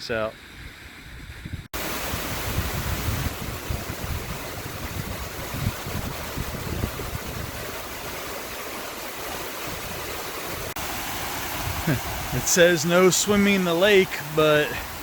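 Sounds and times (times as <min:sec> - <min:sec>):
wind buffeting microphone: 0:00.4 - 0:08.5, 0:09.6 - 0:12.4
water rushing in stream: 0:01.8 - 0:15.0.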